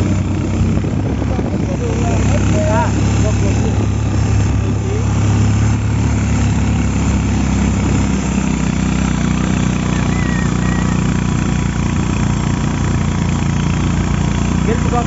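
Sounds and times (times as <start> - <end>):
engine running with low hum: 0.0 - 15.0.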